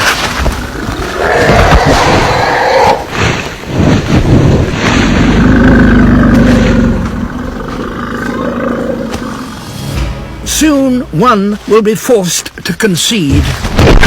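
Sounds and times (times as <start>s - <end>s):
elephants roaring: 0.5s - 9.9s.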